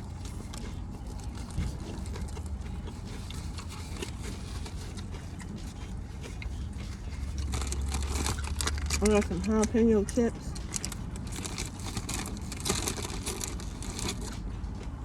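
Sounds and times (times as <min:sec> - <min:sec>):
low hum: 0:00.0 - 0:15.0
person chewing: 0:00.0 - 0:15.0.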